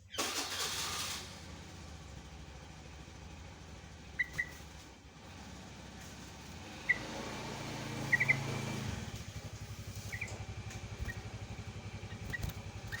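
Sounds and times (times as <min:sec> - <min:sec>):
motorcycle engine puttering: 0:00.0 - 0:13.0
bird chirping: 0:04.1 - 0:04.7, 0:06.6 - 0:13.0.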